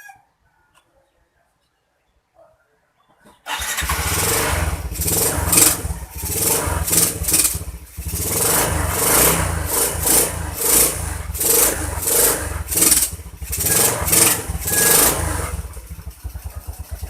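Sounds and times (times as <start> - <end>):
motorcycle engine revving: 3.5 - 17.0.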